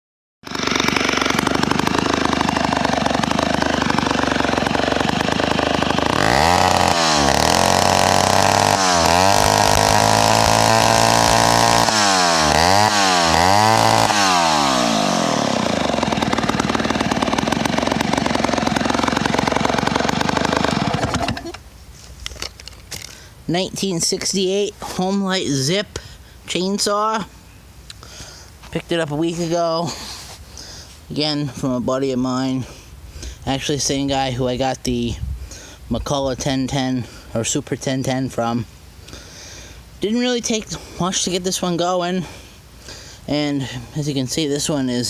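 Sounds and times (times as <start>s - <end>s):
chainsaw engine running and revving: 0.4s - 21.6s.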